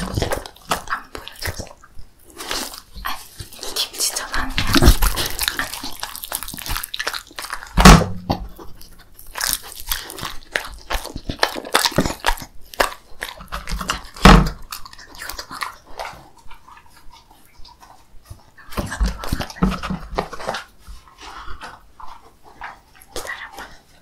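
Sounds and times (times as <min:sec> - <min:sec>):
dog chewing and licking: 0:00.0 - 0:24.0
loud thumps: 0:07.8 - 0:08.5.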